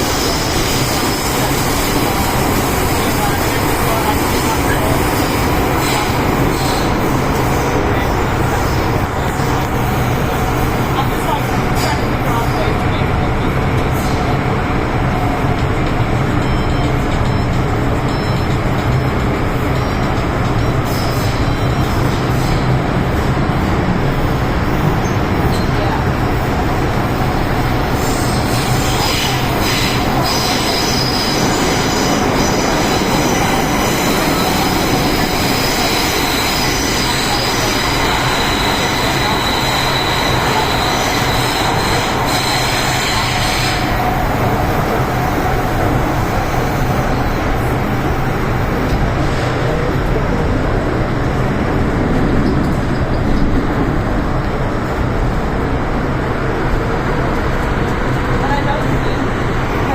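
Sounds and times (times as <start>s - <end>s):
train rail rumble: 0.0s - 59.9s
high-pitched squeal: 28.0s - 47.4s.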